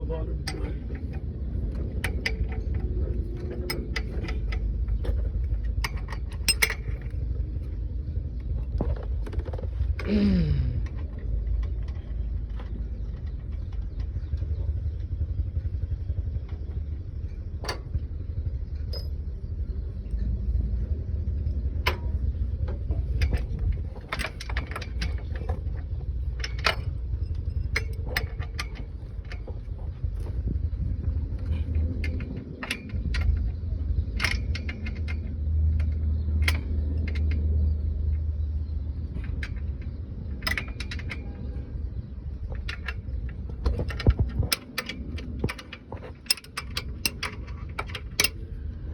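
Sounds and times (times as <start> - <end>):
continuous low rumble: 0.0 - 48.9.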